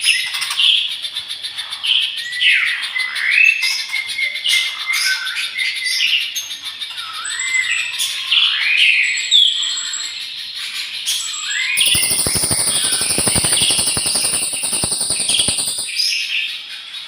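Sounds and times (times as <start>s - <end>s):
buzzy bird trill with clicks: 11.8s - 16.0s.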